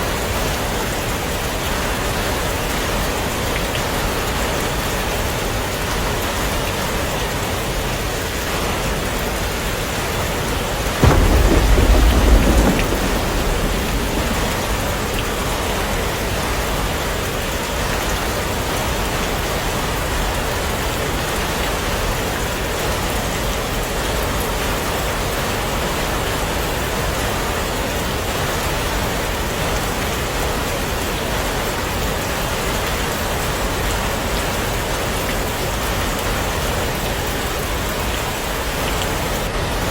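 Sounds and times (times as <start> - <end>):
heavy rain falling: 0.0 - 39.9
thunder clap: 11.0 - 17.3.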